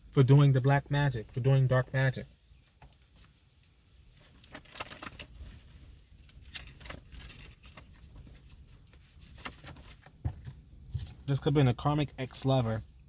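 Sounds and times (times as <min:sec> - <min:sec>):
handling clicks and rustles: 0:02.6 - 0:13.0.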